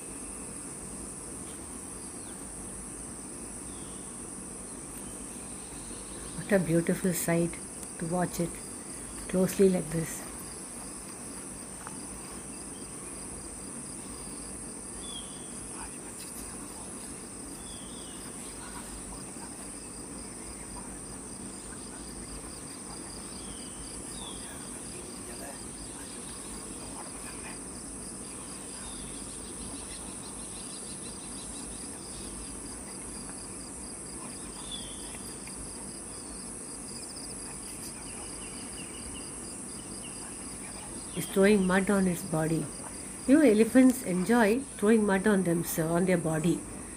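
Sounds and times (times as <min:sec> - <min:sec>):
insects buzzing shrilly: 0:00.0 - 0:46.9
pulsing insect trill: 0:00.0 - 0:46.9.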